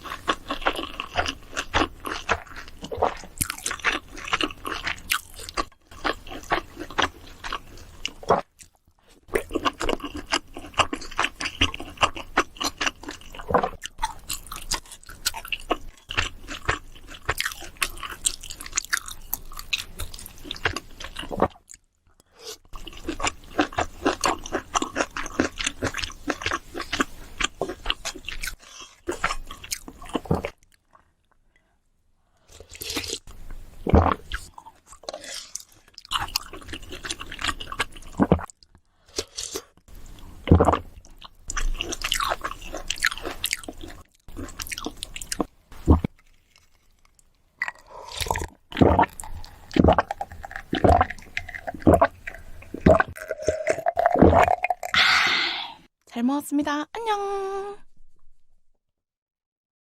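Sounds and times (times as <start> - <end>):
person chewing food: 0.0 - 31.8, 32.4 - 55.8.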